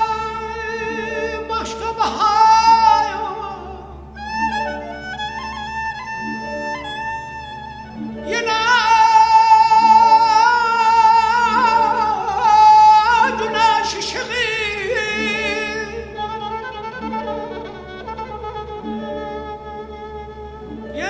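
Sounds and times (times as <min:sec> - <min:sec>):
melismatic singing voice: 0:00.0 - 0:05.4, 0:08.1 - 0:17.6
orchestral strings: 0:00.0 - 0:21.0.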